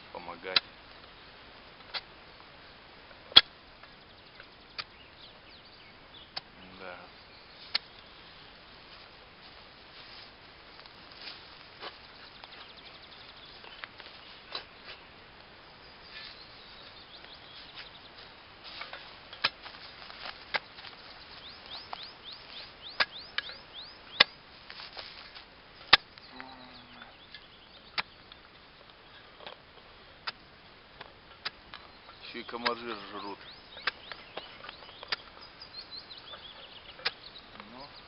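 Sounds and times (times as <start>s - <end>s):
bird singing falling notes: 11.2s - 29.6s, 30.2s - 38.0s.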